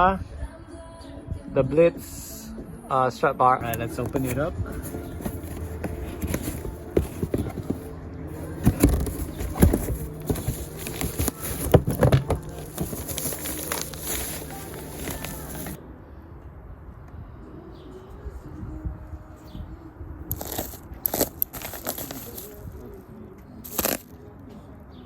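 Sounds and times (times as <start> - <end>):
cardboard box being opened: 3.6 - 15.8, 20.3 - 22.6.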